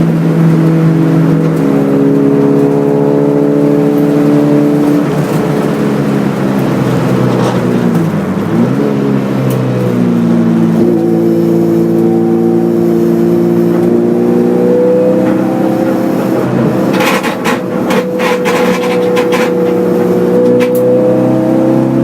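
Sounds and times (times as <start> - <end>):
race car engine at high revs: 0.0 - 22.0
sharp knocks and rattles: 16.2 - 20.7.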